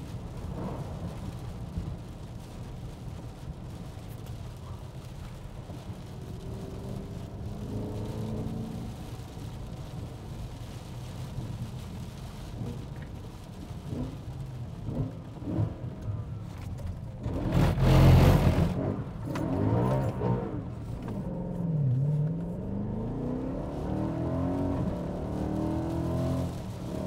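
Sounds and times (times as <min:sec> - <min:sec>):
car engine revving: 0:17.2 - 0:27.0.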